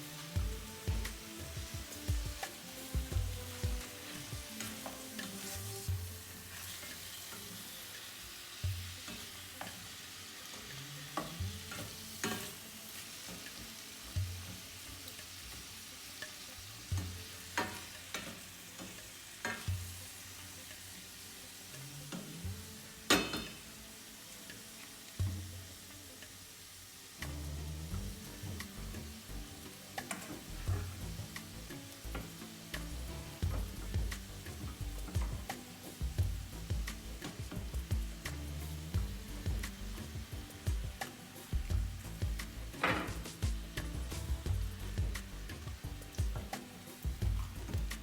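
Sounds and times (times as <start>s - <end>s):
food sizzling in a pan: 0.0s - 48.0s.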